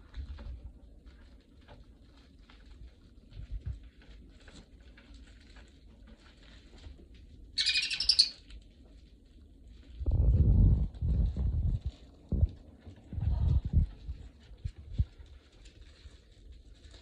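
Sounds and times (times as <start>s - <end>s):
bird chirping shrilly: 7.6s - 8.4s
low thumping rumble: 9.9s - 15.4s.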